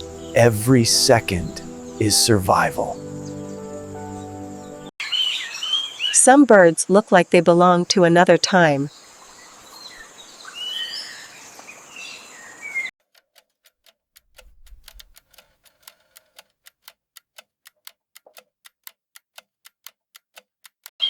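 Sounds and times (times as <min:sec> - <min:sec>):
forest birds chirping: 0:00.0 - 0:06.4, 0:08.5 - 0:12.9
ticking clicks: 0:13.1 - 0:20.9.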